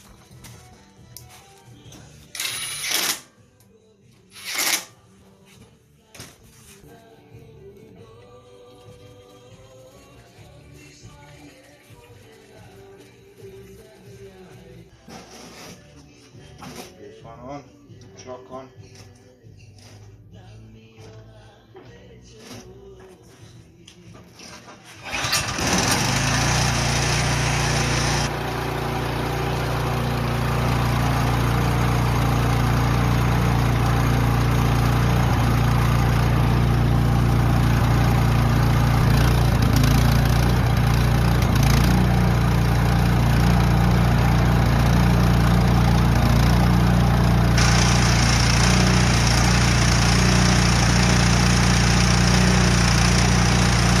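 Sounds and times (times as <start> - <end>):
snowblower engine running: 25.0 - 54.0.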